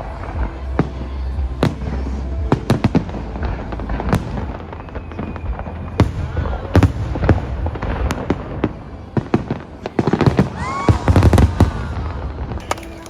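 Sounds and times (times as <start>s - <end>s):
fireworks bangs and crackling: 0.0s - 13.0s
low rumble: 11.0s - 12.6s.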